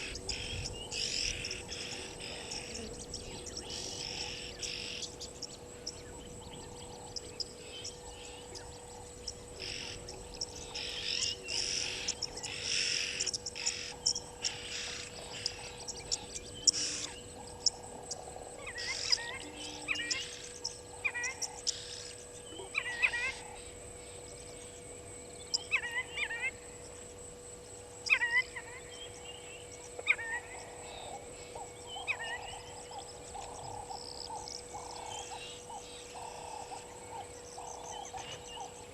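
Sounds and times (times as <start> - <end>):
faint steady hum: 0.0 - 38.9
harsh raspy bird calls: 9.6 - 23.6.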